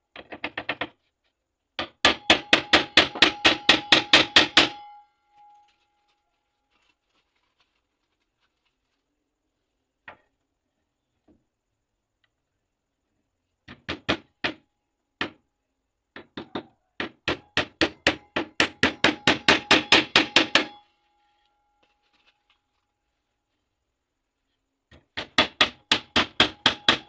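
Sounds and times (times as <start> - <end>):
hammer blows: 2.1 - 5.7, 17.8 - 20.8.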